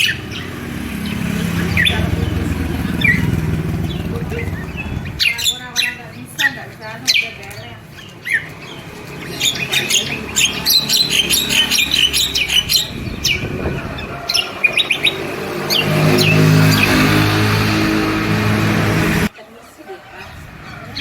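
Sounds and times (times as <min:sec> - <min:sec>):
low engine hum: 0:00.0 - 0:05.2
songbird chirping: 0:00.0 - 0:21.0.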